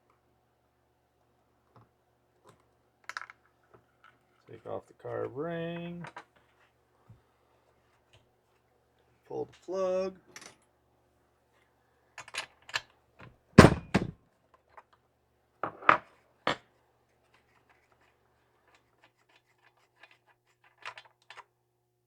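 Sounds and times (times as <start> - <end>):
clicks and knocks of tools: 1.7 - 4.2, 12.2 - 13.3, 17.3 - 21.5.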